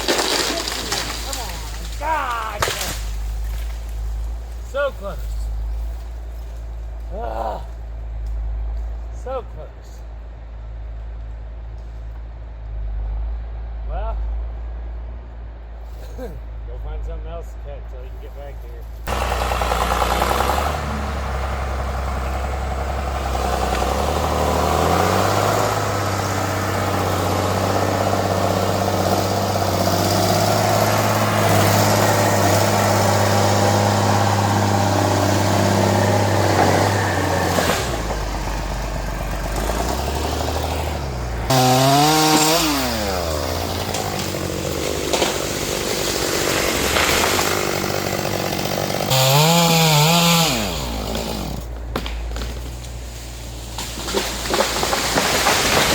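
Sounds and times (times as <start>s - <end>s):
chainsaw revving: 19.1s - 51.8s, 53.8s - 55.9s.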